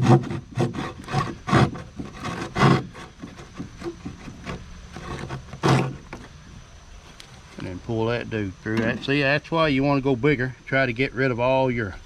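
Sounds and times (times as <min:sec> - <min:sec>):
saw cutting drywall: 0:00.0 - 0:06.3.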